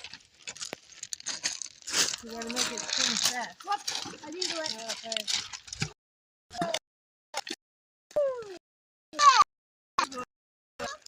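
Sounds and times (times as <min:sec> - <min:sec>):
girl's voice: 0:02.2 - 0:05.3.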